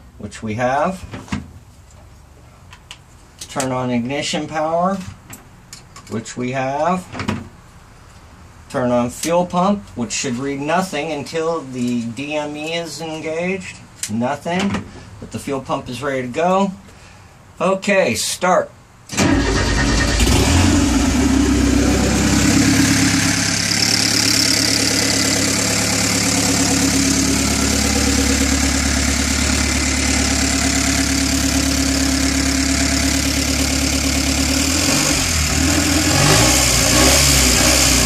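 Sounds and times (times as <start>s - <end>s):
race car engine idling: 20.2s - 34.8s.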